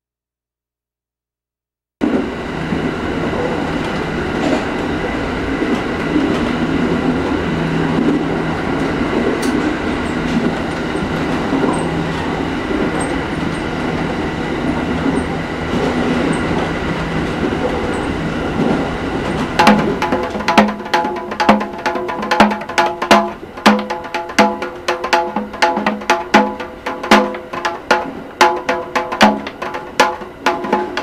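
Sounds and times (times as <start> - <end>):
electric train rumbling: 2.0 - 31.0
wheel clicks on rails: 19.2 - 31.0.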